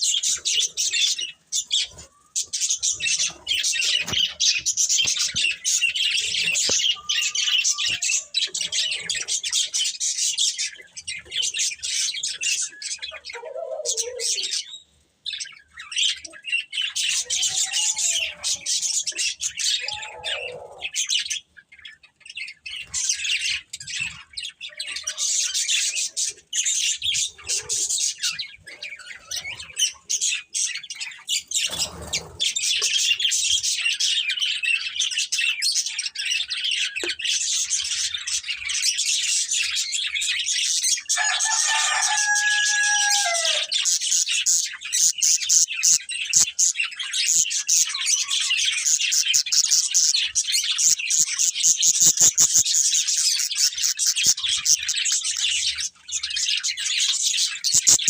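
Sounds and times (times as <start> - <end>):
budgerigars chirping and chattering: 0.0 - 58.0.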